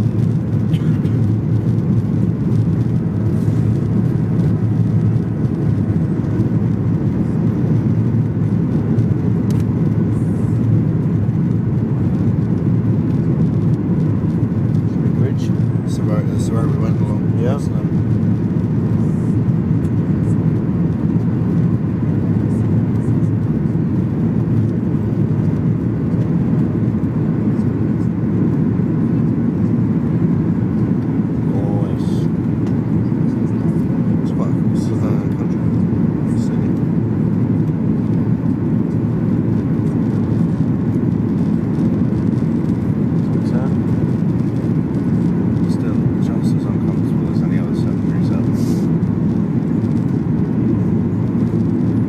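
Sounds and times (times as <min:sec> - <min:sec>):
airplane cabin rumble: 0:00.0 - 0:52.0.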